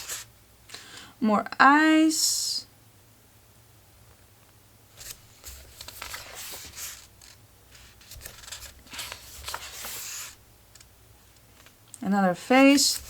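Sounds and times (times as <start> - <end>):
paper pages rustling: 0.0 - 0.3, 5.0 - 10.9, 12.3 - 13.0.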